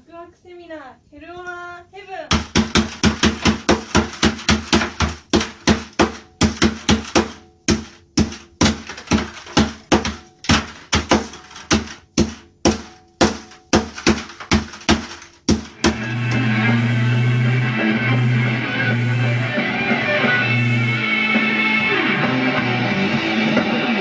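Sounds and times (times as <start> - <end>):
hammer smashing discs: 2.3 - 18.2.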